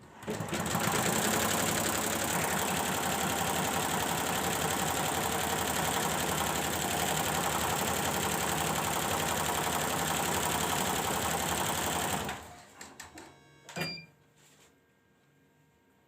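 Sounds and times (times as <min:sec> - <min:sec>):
embroidery machine stitching: 0:00.2 - 0:12.5
brief high beep: 0:13.8 - 0:14.2.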